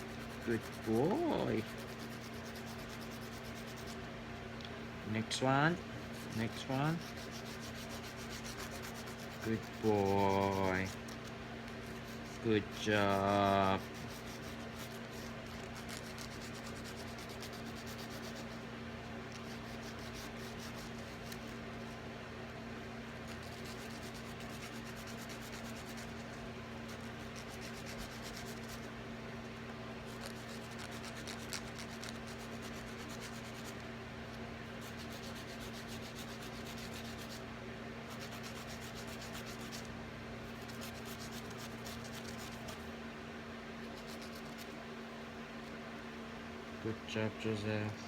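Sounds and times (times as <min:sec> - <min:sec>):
nail file rasping on claws: 0:00.0 - 0:04.0, 0:06.1 - 0:18.6, 0:19.3 - 0:21.9, 0:23.2 - 0:28.9, 0:30.0 - 0:33.8, 0:34.8 - 0:37.4, 0:38.1 - 0:39.9, 0:40.5 - 0:42.8, 0:43.8 - 0:44.8
fans humming: 0:00.0 - 0:48.0.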